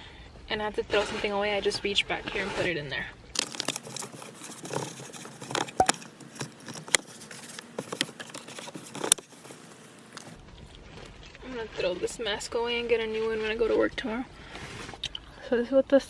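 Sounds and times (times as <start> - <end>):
rustling and handling noises: 3.4 - 11.1.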